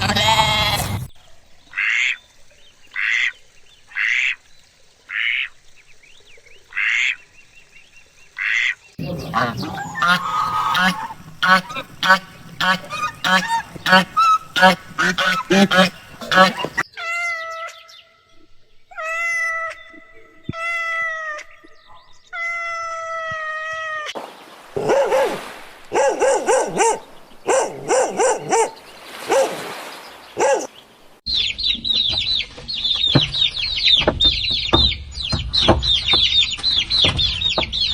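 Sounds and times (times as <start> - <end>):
rapid harsh bird calls: 8.4 - 18.1
chorus of high bird chirping: 9.0 - 18.3, 31.3 - 37.9.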